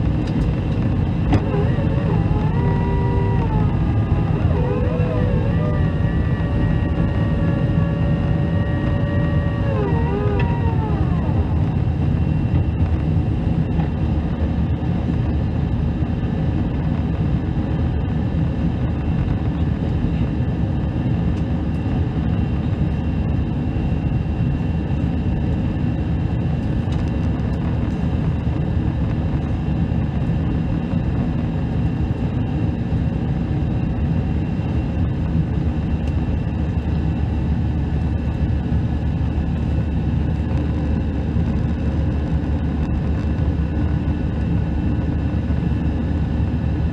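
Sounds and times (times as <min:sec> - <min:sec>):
jet engine roar in cabin: 0:00.0 - 0:46.9
faint high whines: 0:00.1 - 0:13.8.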